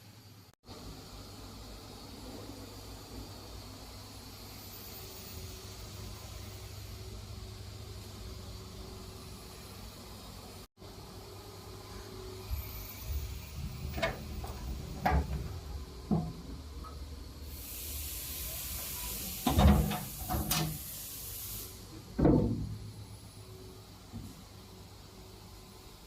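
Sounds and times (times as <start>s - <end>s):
steady hiss: 0.0s - 26.0s
knocks and clunks: 13.6s - 17.1s, 19.4s - 20.8s, 22.2s - 22.9s.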